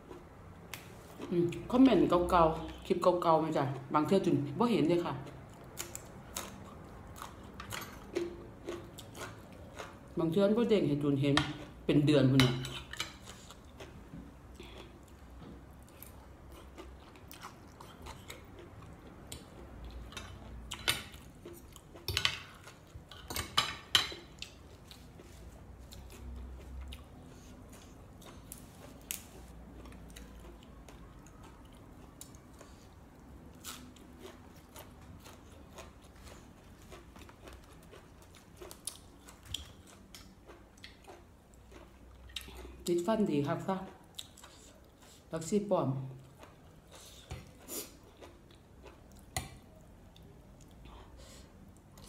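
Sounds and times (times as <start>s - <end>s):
close-up chewing: 5.1s - 10.2s, 12.8s - 23.3s, 24.4s - 42.9s, 46.1s - 52.0s.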